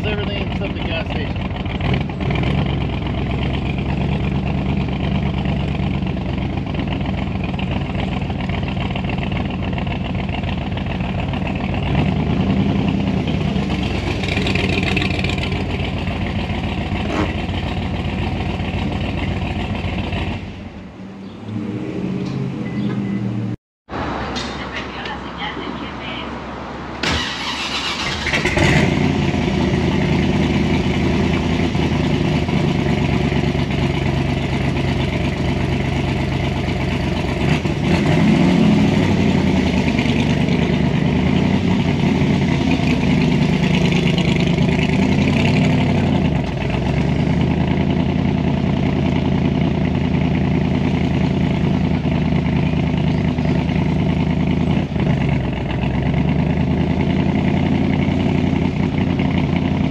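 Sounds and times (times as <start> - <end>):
car engine running: 0.0 - 20.8, 27.0 - 59.9.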